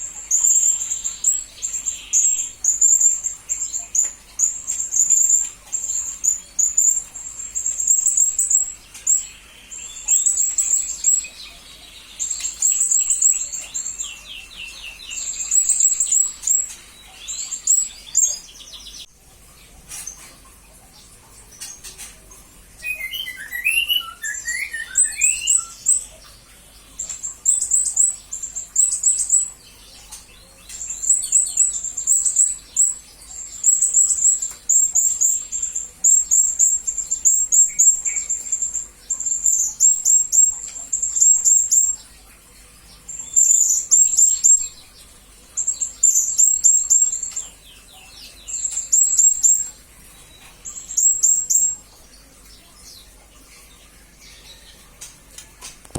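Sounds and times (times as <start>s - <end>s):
parrot high shrill chirps: 22.8s - 25.9s.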